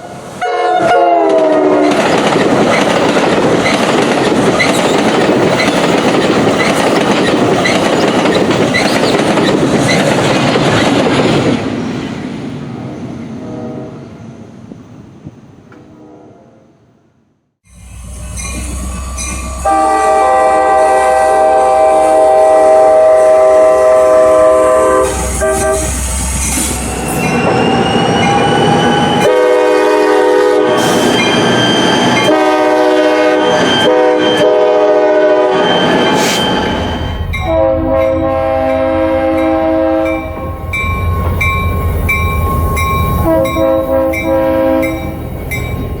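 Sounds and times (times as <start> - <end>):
train air horn blasts: 0.0 - 2.0, 13.4 - 14.0, 17.7 - 26.9, 28.3 - 31.2, 32.0 - 40.8, 42.7 - 45.1
train rumble and wheel clatter: 0.0 - 16.1, 17.8 - 46.0
crossing bell ticking: 39.4 - 46.0.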